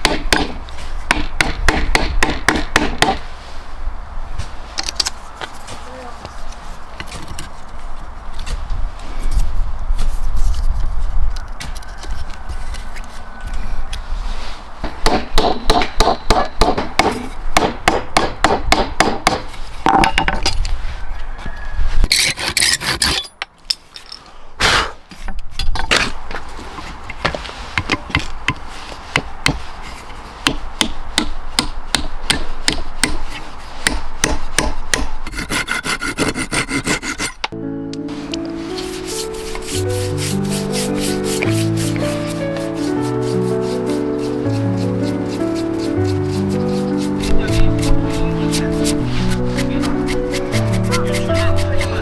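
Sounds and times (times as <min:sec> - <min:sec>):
hand tools rasping wood: 0:22.0 - 0:23.2, 0:26.0 - 0:37.4, 0:38.6 - 0:52.0.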